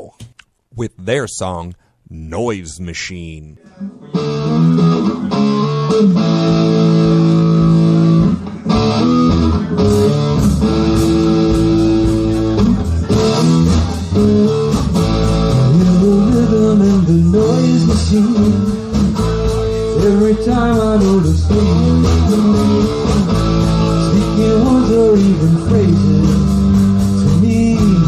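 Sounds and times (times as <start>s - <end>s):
electric guitar chords: 3.9s - 28.0s
bass guitar: 4.1s - 28.0s
drums: 4.2s - 28.0s.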